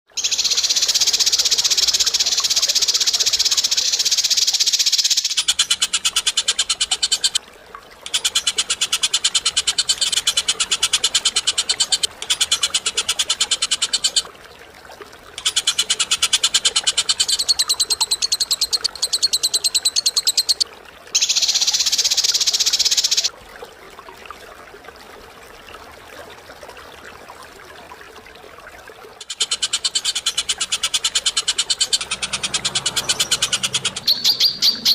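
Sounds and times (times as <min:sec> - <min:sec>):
bird rattling trills: 0:21.2 - 0:23.3
high-pitched bird chatter: 0:21.2 - 0:23.3, 0:29.2 - 0:34.9.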